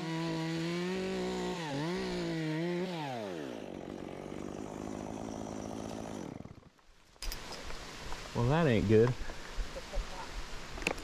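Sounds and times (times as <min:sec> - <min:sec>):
chainsaw revving: 0:00.0 - 0:06.8.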